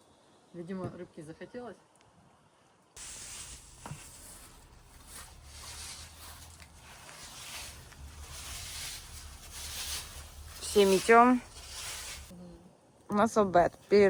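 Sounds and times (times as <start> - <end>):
rasping sweeping strokes: 3.0 - 12.3.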